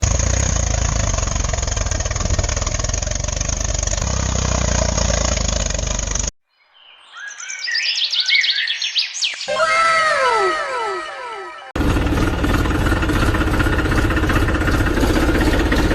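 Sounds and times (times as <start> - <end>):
motor pulsing: 0.0 - 6.3, 11.8 - 15.9.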